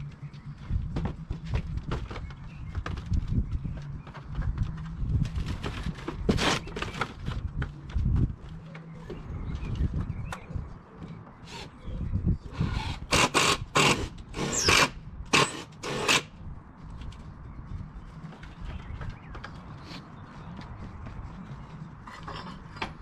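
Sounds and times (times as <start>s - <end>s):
power drill driving screws: 12.6s - 16.3s.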